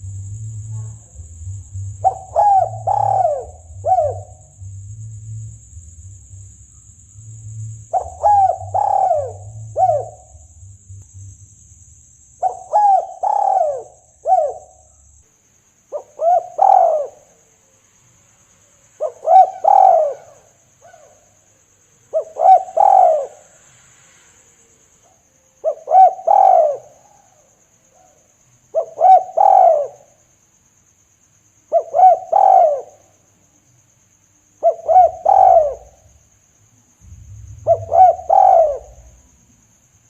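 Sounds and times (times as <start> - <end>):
dove cooing: 0.0 - 5.6, 7.3 - 11.0, 12.4 - 14.9, 16.0 - 17.3, 19.0 - 21.2, 22.1 - 23.4, 25.6 - 27.2, 28.8 - 30.0, 31.7 - 33.0, 34.6 - 36.1, 37.0 - 39.3.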